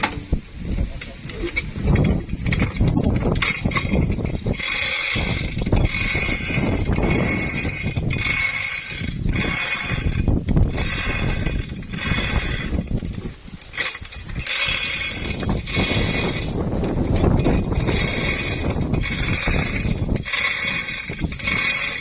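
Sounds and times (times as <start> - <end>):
heavy machinery rumbling: 0.0 - 22.0.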